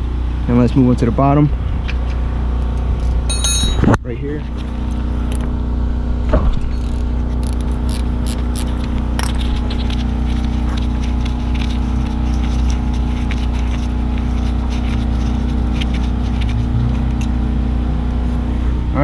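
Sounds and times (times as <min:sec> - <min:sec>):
steady low hum: 0:00.0 - 0:19.0
hand tools clicking and scraping: 0:06.8 - 0:17.4.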